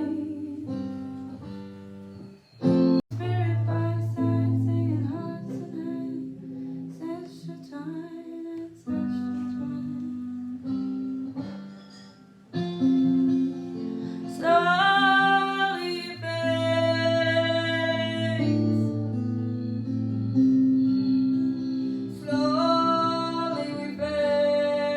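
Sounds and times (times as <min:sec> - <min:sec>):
woman singing slowly: 0:00.0 - 0:01.3, 0:03.1 - 0:10.8, 0:14.3 - 0:19.0, 0:22.1 - 0:24.9
acoustic guitar chords: 0:00.0 - 0:24.9.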